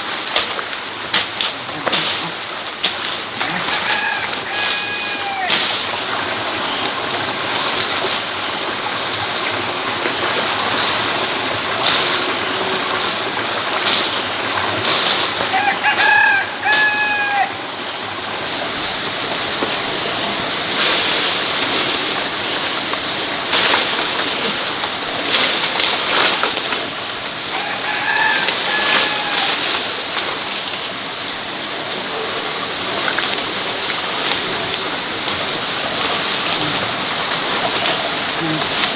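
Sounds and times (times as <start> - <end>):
rooster crowing: 3.4 - 5.6, 15.5 - 17.6, 27.5 - 29.9.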